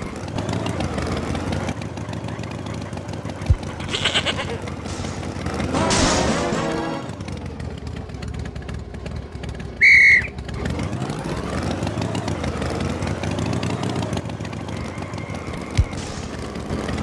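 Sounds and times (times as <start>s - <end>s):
vehicle engine running: 0.0s - 17.0s
loud high whistle: 9.8s - 10.4s.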